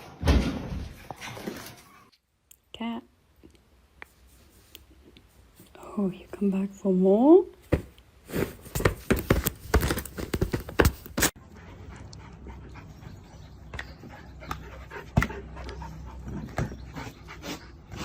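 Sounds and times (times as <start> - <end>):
dog panting: 11.4 - 18.0.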